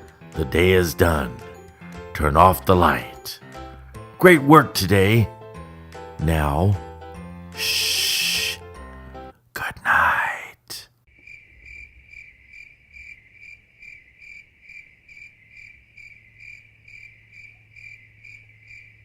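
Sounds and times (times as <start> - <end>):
crickets chirping: 7.6 - 8.6, 11.1 - 19.0.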